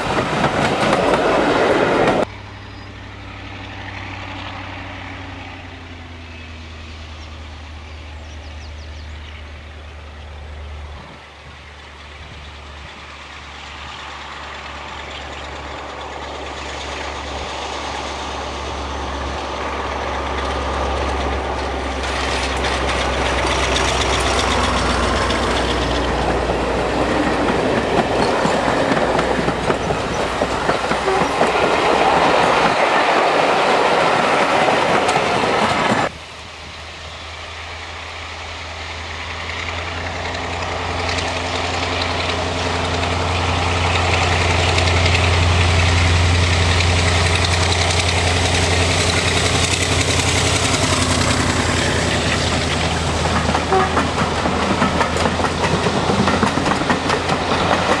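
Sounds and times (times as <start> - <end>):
diesel locomotive engine droning: 0.0 - 58.0
diesel train passing on rails: 0.0 - 58.0.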